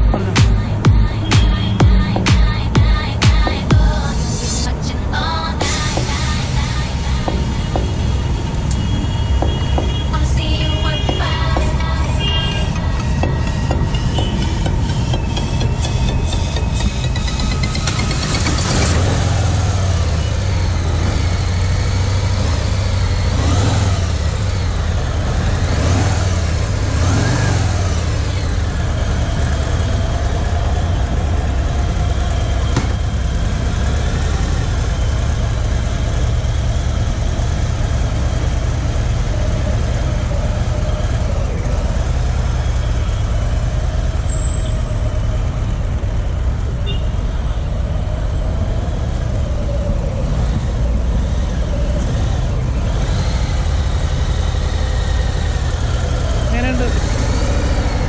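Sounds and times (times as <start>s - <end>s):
motorcycle engine revving and idling: 0.0s - 58.0s.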